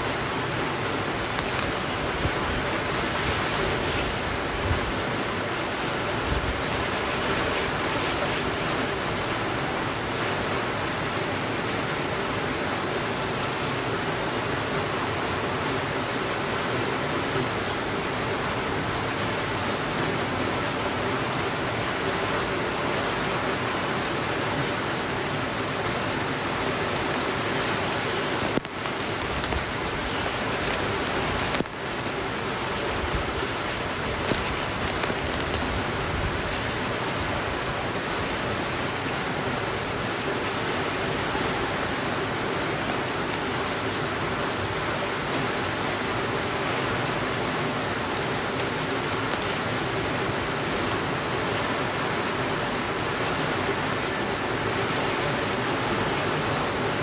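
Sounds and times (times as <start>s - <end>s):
steady rainfall: 0.0s - 57.0s
faint clicks: 1.3s - 1.8s, 28.3s - 32.0s, 34.1s - 35.8s, 48.6s - 49.8s.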